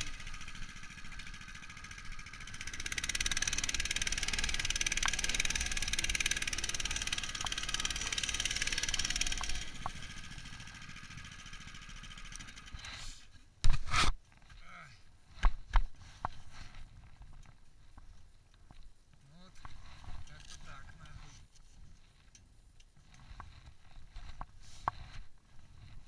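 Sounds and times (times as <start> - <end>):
muffled small engine running: 0.0 - 13.0.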